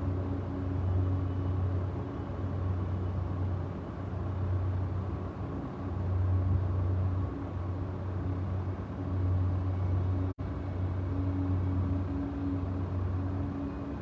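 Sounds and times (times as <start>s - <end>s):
low rumble with hum: 0.0s - 14.0s.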